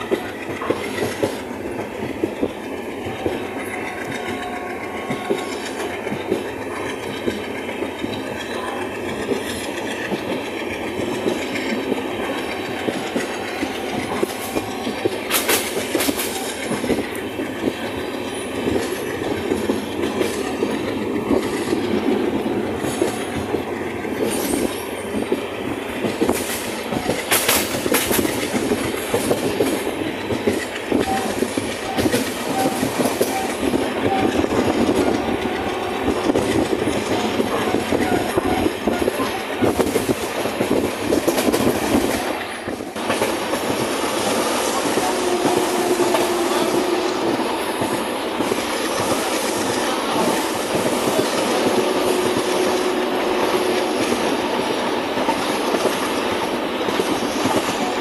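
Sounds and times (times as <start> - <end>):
train rumbling: 0.0 - 58.0
wheels clattering on rails: 0.0 - 58.0.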